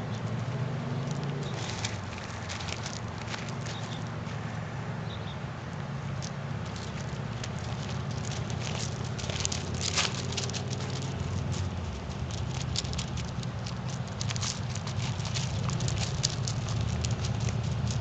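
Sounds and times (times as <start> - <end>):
puppy paws pattering: 0.0 - 4.5, 6.2 - 18.0
claws clicking: 1.0 - 4.2, 6.2 - 18.0.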